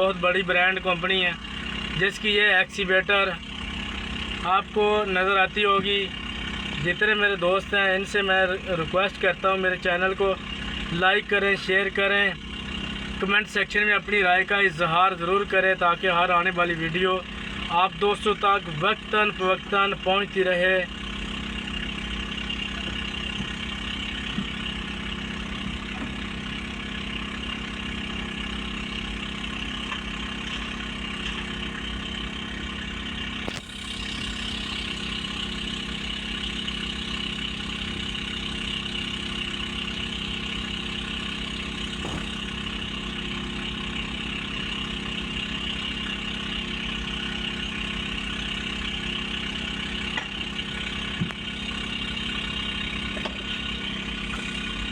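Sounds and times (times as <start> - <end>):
heavy machinery diesel engines running: 0.0 - 54.9.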